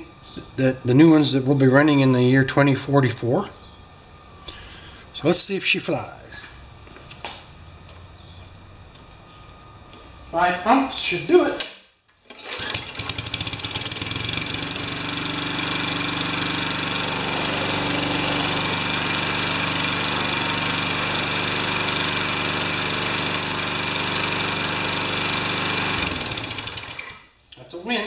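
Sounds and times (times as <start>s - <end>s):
lawn mower engine pull-started: 12.2s - 27.3s.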